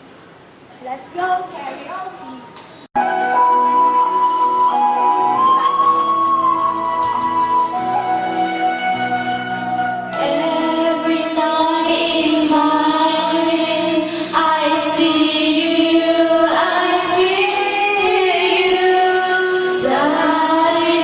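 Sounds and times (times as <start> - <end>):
music: 3.0 - 21.0
person singing long held notes: 10.1 - 21.0.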